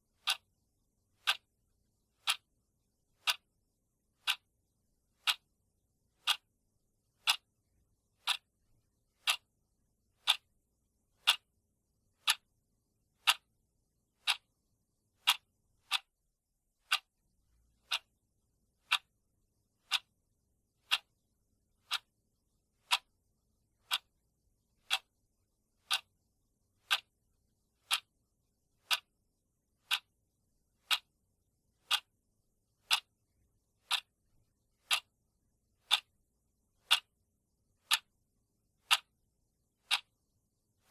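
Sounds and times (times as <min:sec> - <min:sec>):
timer ticking: 0:00.1 - 0:00.6, 0:01.2 - 0:01.6, 0:02.2 - 0:02.6, 0:03.2 - 0:03.6, 0:04.2 - 0:04.5, 0:05.2 - 0:05.6, 0:06.2 - 0:09.6, 0:10.2 - 0:10.6, 0:11.2 - 0:12.6, 0:13.2 - 0:13.6, 0:14.2 - 0:17.2, 0:17.8 - 0:18.2, 0:18.8 - 0:19.2, 0:19.8 - 0:21.2, 0:21.8 - 0:23.1, 0:23.8 - 0:25.2, 0:25.8 - 0:26.2, 0:26.8 - 0:27.2, 0:27.8 - 0:28.2, 0:28.8 - 0:29.2, 0:29.8 - 0:30.1, 0:30.8 - 0:31.2, 0:31.8 - 0:33.2, 0:33.8 - 0:35.2, 0:35.8 - 0:36.2, 0:36.8 - 0:38.2, 0:38.8 - 0:40.2.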